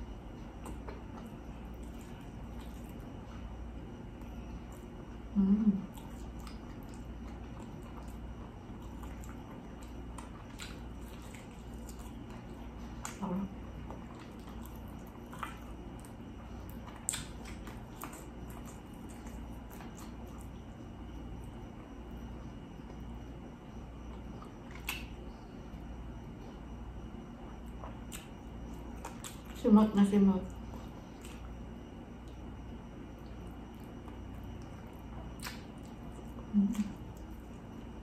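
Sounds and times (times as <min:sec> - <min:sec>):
person chewing: 0:00.5 - 0:03.5, 0:05.9 - 0:20.7, 0:24.1 - 0:25.3, 0:27.4 - 0:29.6, 0:30.5 - 0:38.0
wet mouth clicks: 0:35.4 - 0:35.9.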